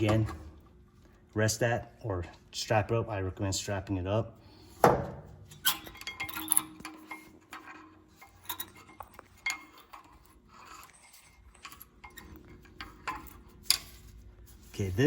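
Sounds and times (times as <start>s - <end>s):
metal parts clicking and clinking: 5.5s - 14.2s.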